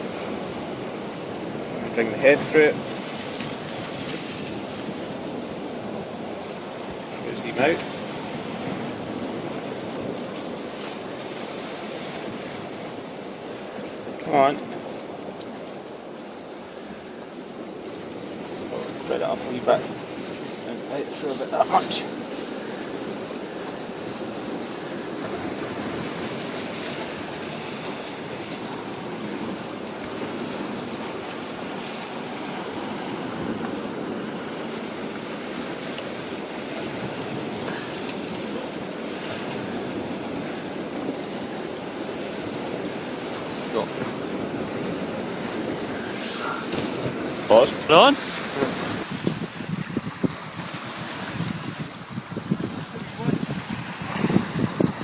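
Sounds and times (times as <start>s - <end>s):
sea waves on rocky shore: 0.0s - 55.0s
wind on microphone: 0.0s - 55.0s.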